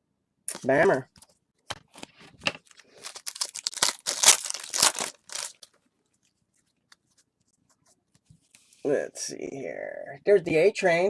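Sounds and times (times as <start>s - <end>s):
card pack wrapper tearing: 1.7s - 5.7s.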